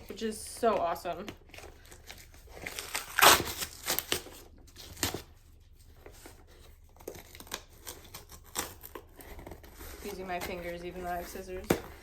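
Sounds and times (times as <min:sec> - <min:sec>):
package being ripped open: 0:02.1 - 0:05.3.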